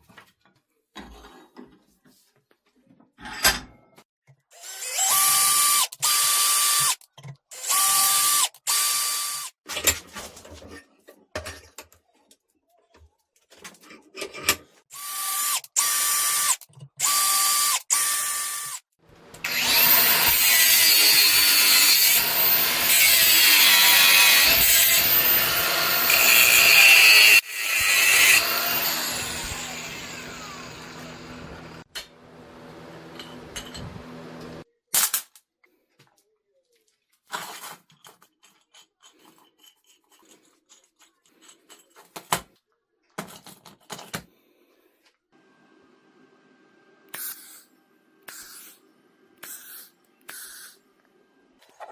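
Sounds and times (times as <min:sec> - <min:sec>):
electric power tool running: 0:18.6 - 0:31.9.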